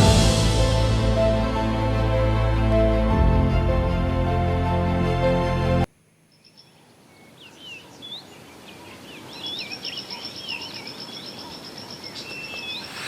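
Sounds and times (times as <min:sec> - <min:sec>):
low background hiss: 0:05.9 - 0:12.6
birds chirping: 0:06.3 - 0:13.0.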